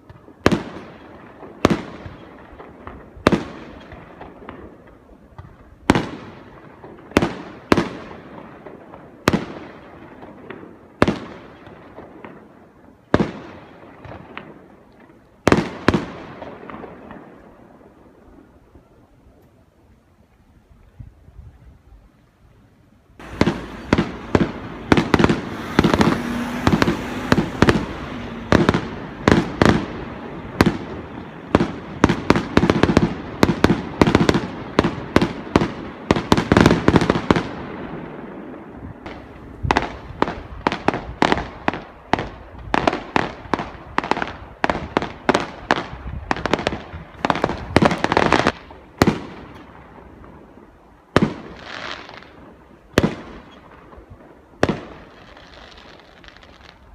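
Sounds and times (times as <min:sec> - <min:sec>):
fireworks bursting: 0:00.0 - 0:18.8, 0:23.2 - 0:56.9
continuous rumble: 0:23.1 - 0:35.5.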